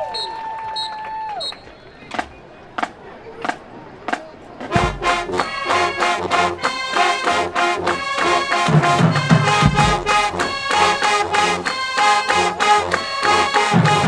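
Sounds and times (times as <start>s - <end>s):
drumline beat: 2.1s - 14.0s
brass section playing chords: 4.7s - 14.0s.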